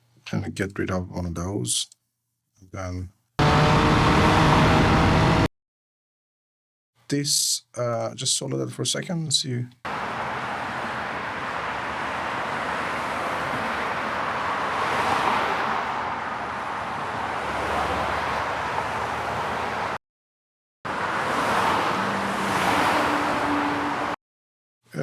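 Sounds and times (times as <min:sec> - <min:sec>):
cars passing by: 0:03.4 - 0:05.5, 0:09.9 - 0:20.0, 0:20.9 - 0:24.2.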